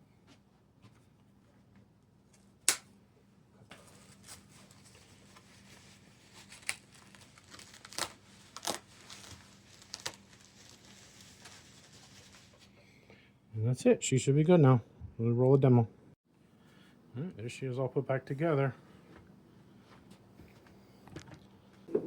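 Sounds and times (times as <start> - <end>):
cable tie snapping: 2.6 - 2.9.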